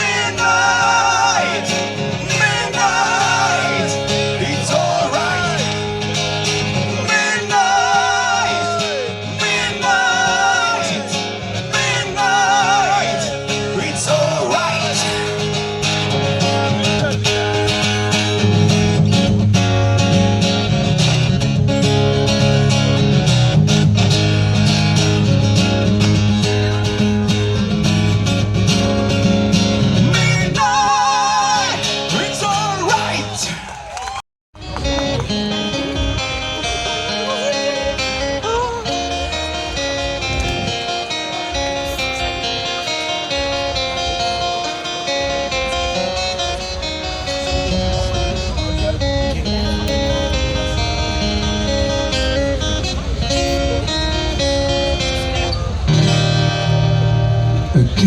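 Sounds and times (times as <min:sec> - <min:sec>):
man singing: 0:00.0 - 0:18.5, 0:30.0 - 0:33.6
acoustic guitar strumming: 0:00.0 - 0:33.8, 0:34.6 - 0:58.0.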